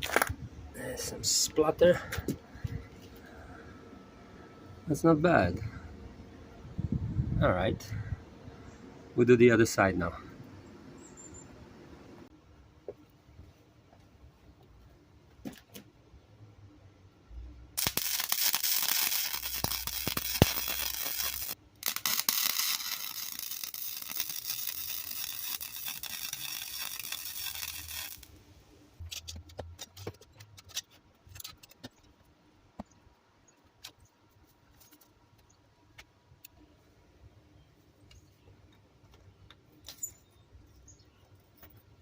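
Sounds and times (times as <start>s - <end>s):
welder arc crackling and sizzling: 17.8s - 29.0s.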